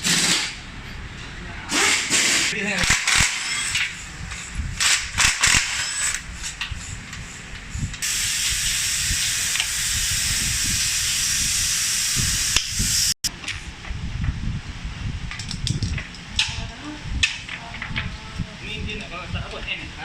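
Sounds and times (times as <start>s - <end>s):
pressurised jet hissing: 8.0s - 13.2s.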